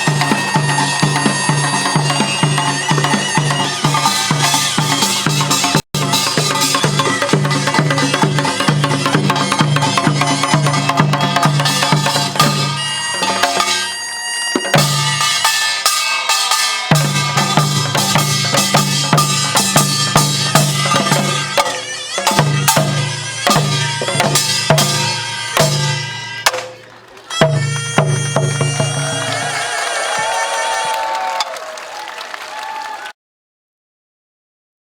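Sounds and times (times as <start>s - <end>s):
repeated drum strokes: 0.0s - 26.8s
percussion band playing: 0.0s - 33.1s
sharp percussion hits: 14.6s - 26.7s.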